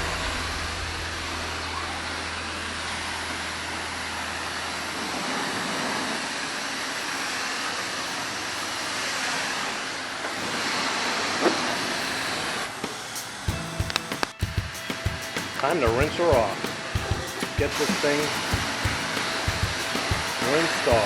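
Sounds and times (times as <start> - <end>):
low hum: 0.0 - 6.1
pressure washer spraying car: 14.8 - 21.0.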